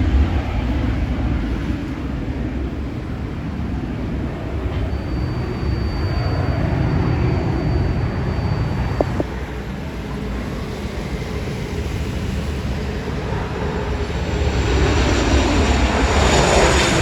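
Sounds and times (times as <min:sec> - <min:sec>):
jet engines rumbling: 0:00.0 - 0:17.0
thin high whine: 0:04.7 - 0:09.7.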